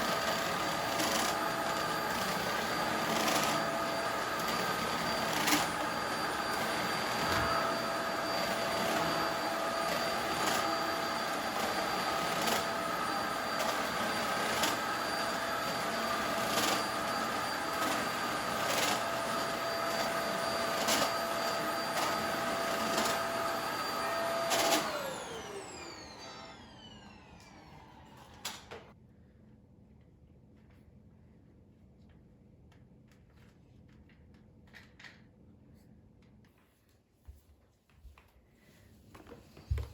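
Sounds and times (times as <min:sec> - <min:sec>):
vacuum cleaner clicking: 0:00.0 - 0:28.9
vacuum motor winding down: 0:00.0 - 0:28.9
vacuum cleaner whining: 0:00.0 - 0:29.0, 0:38.9 - 0:39.9.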